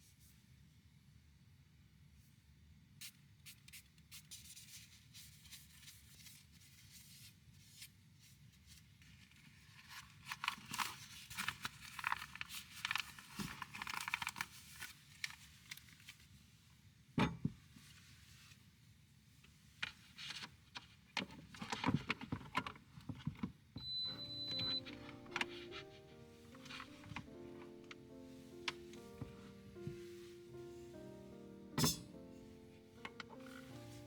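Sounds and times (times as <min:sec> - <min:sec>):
rustling and tearing: 0:09.2 - 0:16.2.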